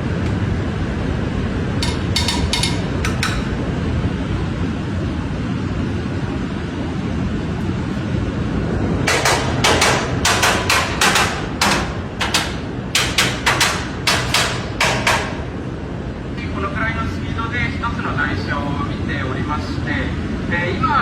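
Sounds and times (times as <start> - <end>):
low steady rumble: 0.0 - 21.0
hammer tapping metal: 1.8 - 3.6, 9.1 - 15.5.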